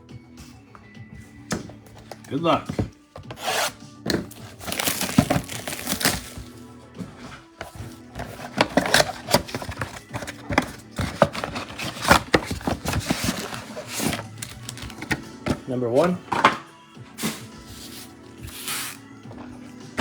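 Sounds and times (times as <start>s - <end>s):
background music: 0.0s - 20.0s
cardboard and wrapping tearing: 3.2s - 6.6s, 7.6s - 15.6s, 17.2s - 19.0s.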